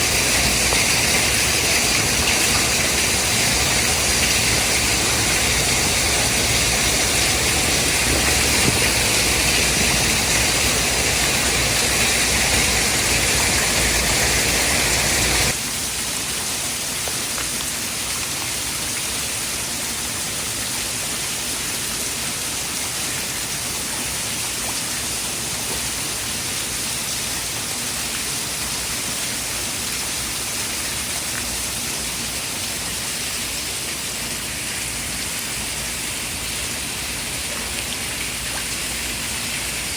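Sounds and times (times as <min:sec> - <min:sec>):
rushing white noise with low rumble: 0:00.0 - 0:15.9
even hiss like rain: 0:00.0 - 0:39.9.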